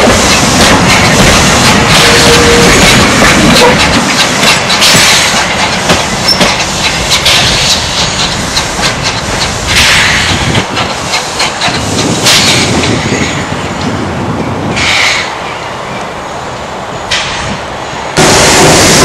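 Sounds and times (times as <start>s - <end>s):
wheels clicking over rail joints: 0.0s - 13.2s
train rushing: 0.0s - 19.0s.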